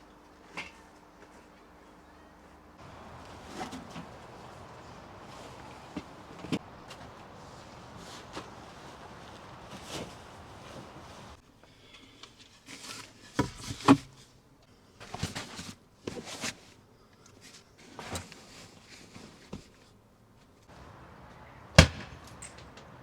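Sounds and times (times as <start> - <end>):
knocks and handling noises: 2.8 - 11.4, 20.7 - 23.0
sharp loud bang: 21.7 - 22.4.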